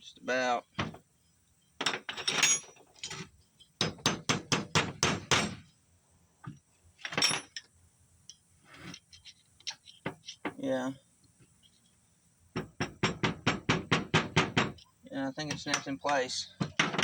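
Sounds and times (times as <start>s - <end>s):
hammer tapping on metal: 12.6s - 17.0s.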